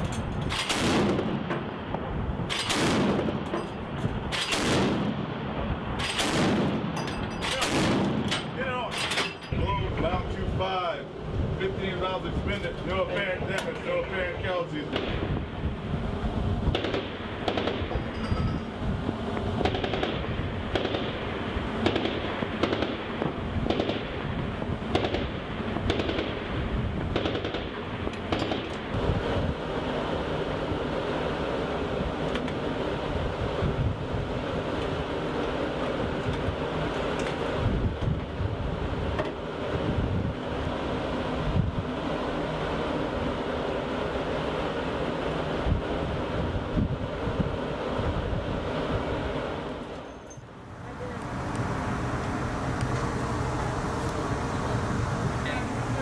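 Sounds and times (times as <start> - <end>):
ship noise: 0.0 - 56.0
wind rumble: 0.0 - 56.0
gunshots: 0.5 - 1.5, 2.5 - 3.4, 4.3 - 5.2, 6.0 - 8.5, 16.7 - 18.0, 19.6 - 24.2, 24.9 - 26.5, 27.1 - 28.7
machine gun firing: 0.5 - 1.5, 2.5 - 3.4, 4.3 - 5.2, 6.0 - 8.4, 16.7 - 18.0, 19.6 - 24.2, 24.9 - 26.5, 27.1 - 28.7.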